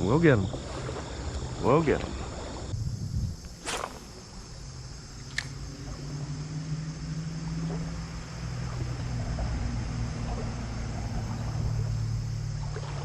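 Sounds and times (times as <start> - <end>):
insects trilling: 0.0 - 13.0
low motor hum: 4.1 - 13.0
sharp click: 5.3 - 5.5.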